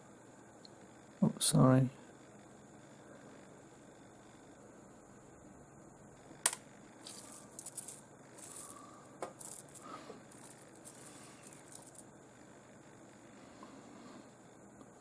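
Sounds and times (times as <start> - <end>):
stones clicking and rattling: 6.5 - 12.0
rustling: 7.0 - 8.8, 9.4 - 12.0.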